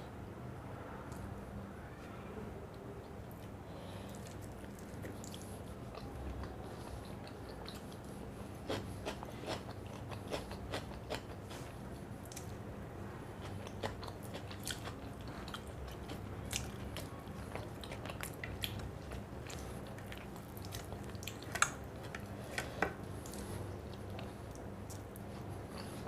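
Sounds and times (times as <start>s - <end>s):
person chewing food: 3.2s - 12.6s, 13.3s - 26.0s.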